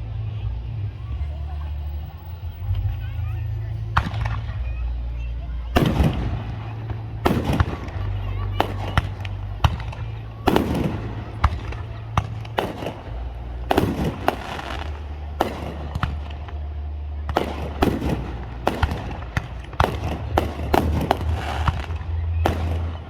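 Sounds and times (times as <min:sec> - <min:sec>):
steady low rumble: 0:00.0 - 0:23.0
fireworks crackling: 0:02.6 - 0:23.0
fireworks bangs: 0:05.7 - 0:23.0.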